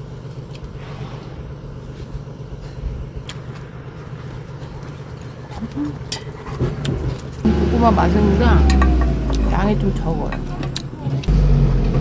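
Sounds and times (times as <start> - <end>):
tiller engine humming: 7.0 - 12.0.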